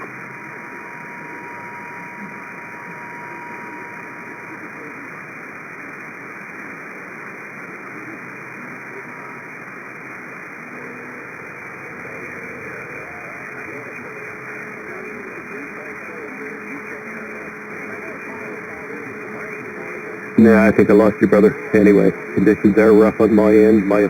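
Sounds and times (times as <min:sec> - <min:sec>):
faint steady whistle: 0:00.0 - 0:05.6
radio static hiss: 0:00.0 - 0:24.0.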